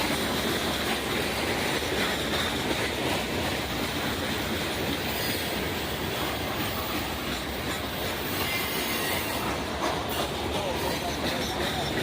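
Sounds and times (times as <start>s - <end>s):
train wheels rattling on rails: 0.0s - 12.0s
faint wheel squeal: 8.3s - 10.3s.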